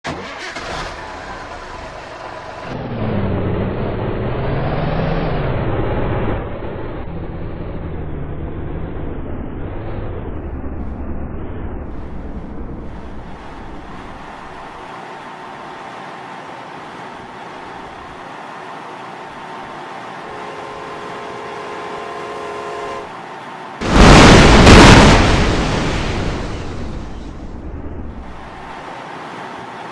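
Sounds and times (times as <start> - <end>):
distant train horn: 19.9 - 23.6.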